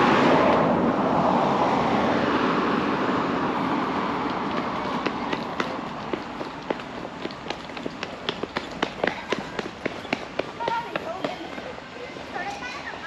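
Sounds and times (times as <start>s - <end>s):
road vehicle passing: 0.0s - 13.0s
footsteps on pavement: 4.2s - 13.0s.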